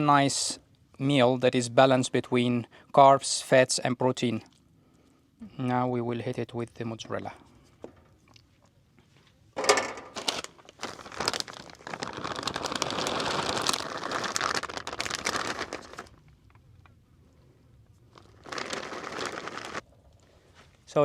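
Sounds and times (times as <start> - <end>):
plastic packet crinkling: 9.6 - 16.7, 18.0 - 19.8.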